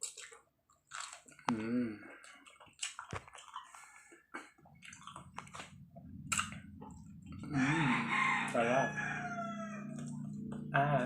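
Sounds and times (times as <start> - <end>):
wet chewing and mouth smacking: 0.0 - 7.5.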